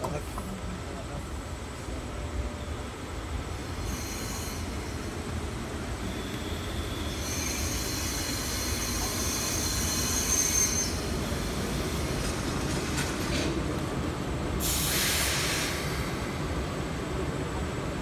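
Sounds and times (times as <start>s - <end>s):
low rumble of rolling train: 0.0s - 18.0s
high brake squeal: 3.8s - 5.1s, 6.0s - 11.5s, 14.6s - 16.2s
air hiss: 14.6s - 16.5s.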